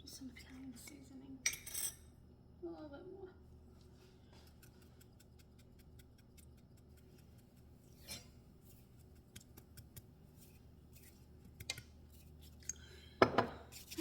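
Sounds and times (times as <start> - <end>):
faint room hum: 0.0 - 14.0
seasoning sprinkled into pot: 3.8 - 12.7, 13.7 - 14.0.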